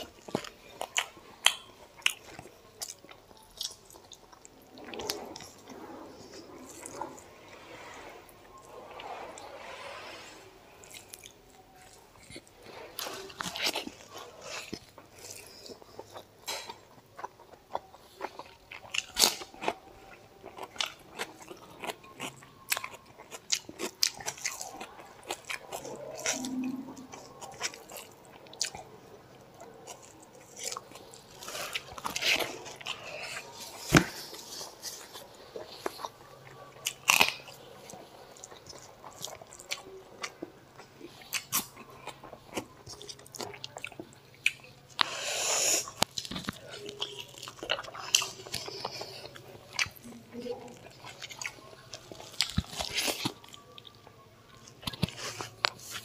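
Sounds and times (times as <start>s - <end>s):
chewing and lip smacks: 10.8s - 56.0s.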